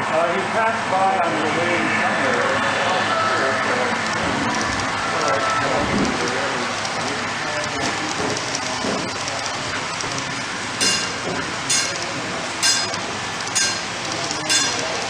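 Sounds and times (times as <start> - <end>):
bell striking: 10.8 - 15.0.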